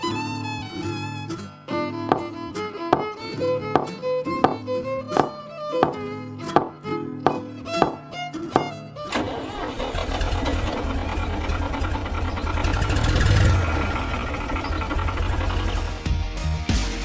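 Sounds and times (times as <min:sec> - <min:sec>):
small engine chugging: 0:08.6 - 0:15.9.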